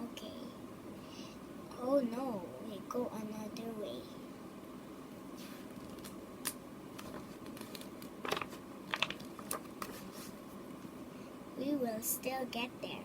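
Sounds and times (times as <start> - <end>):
faint room hiss: 0.0 - 13.0
paper rustling page turn: 7.0 - 10.4.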